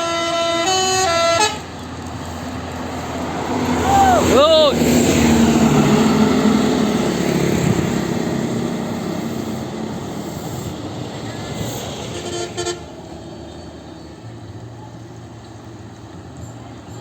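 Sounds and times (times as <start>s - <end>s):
double horn toot: 0.0s - 1.7s, 11.8s - 13.0s
large vehicle passing: 1.1s - 16.3s.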